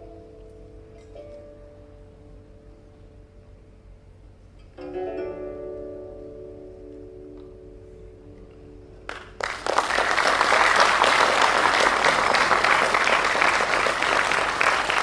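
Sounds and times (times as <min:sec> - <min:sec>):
plucked string chord: 0:00.0 - 0:09.3
audience applause: 0:09.1 - 0:15.0.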